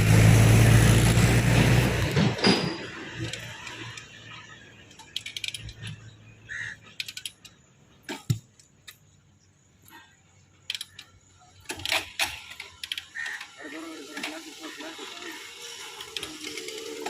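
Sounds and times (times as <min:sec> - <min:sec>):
motorcycle kick lever ratcheting: 0:04.9 - 0:06.1, 0:06.9 - 0:09.0, 0:10.6 - 0:13.2.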